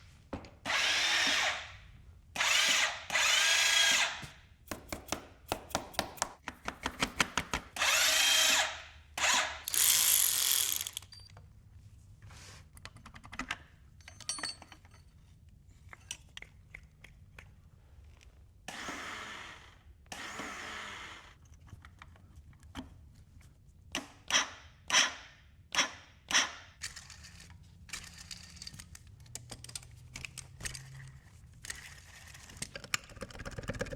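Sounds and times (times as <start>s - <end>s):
power drill bursts: 0.7s - 1.7s, 2.4s - 4.3s, 7.8s - 11.1s, 18.7s - 21.2s.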